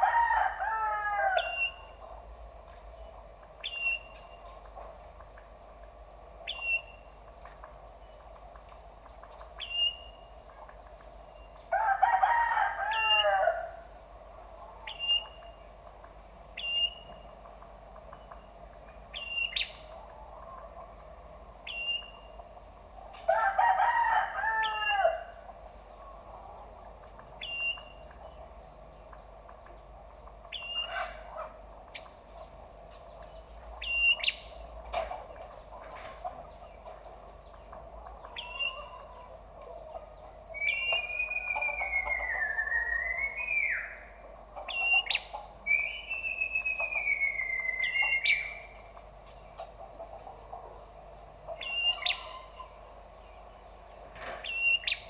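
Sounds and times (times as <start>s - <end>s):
rooster crowing: 0.0s - 1.8s, 11.7s - 13.9s, 23.3s - 25.5s
small bird chirping: 1.4s - 11.7s, 14.0s - 15.8s, 16.5s - 17.4s, 18.1s - 20.1s, 21.6s - 22.4s, 27.0s - 34.7s, 36.5s - 49.7s, 51.5s - 55.0s.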